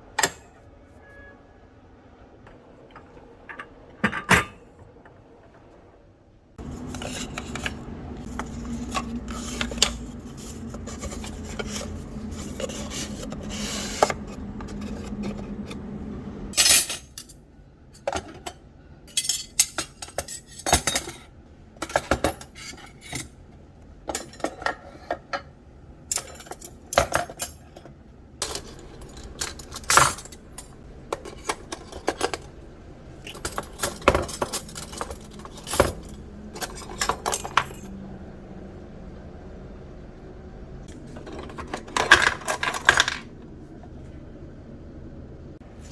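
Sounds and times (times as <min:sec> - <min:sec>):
steady background noise: 0:00.0 - 0:45.9
cutlery and dishes clinking: 0:18.0 - 0:23.3, 0:26.1 - 0:32.5, 0:33.2 - 0:37.9.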